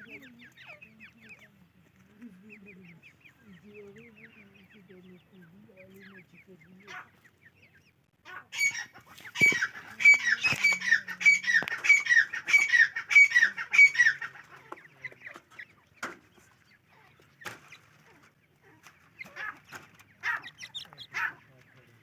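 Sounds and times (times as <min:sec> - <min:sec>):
francolin calling: 0:02.4 - 0:15.8, 0:19.2 - 0:21.4.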